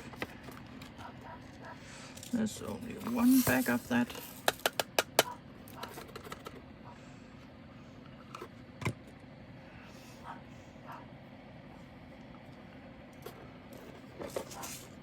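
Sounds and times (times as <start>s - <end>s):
plastic containers clicking and tapping: 4.4s - 6.5s.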